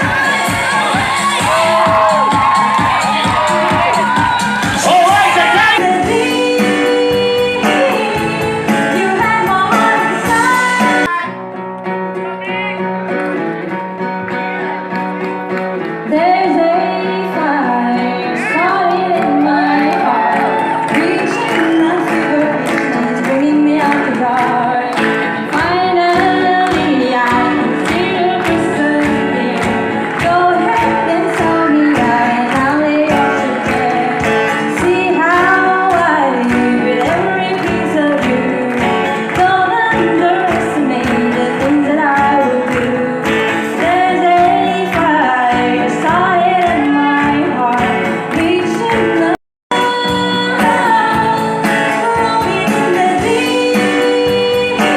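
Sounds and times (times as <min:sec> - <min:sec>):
steady drum beat: 0:00.0 - 0:11.0
person singing: 0:00.0 - 0:11.4, 0:16.1 - 0:54.9
live band playing: 0:00.0 - 0:54.9.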